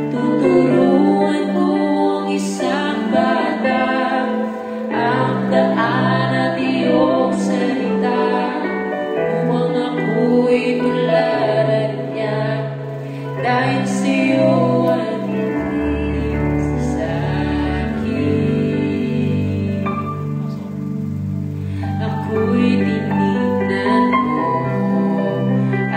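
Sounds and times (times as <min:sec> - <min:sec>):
slow gentle ballad: 0:00.0 - 0:25.9
low bass notes: 0:13.5 - 0:25.2.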